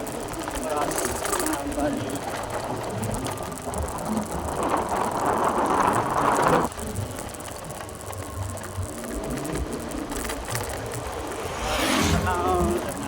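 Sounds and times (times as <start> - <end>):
motorbike riding rush: 0.0 - 13.0.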